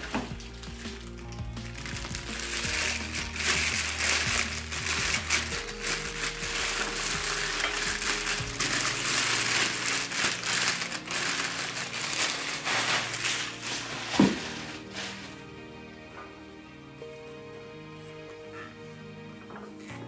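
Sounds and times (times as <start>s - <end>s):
packaging crinkling and rustling: 0.0s - 15.4s
music of low held notes: 0.0s - 20.0s.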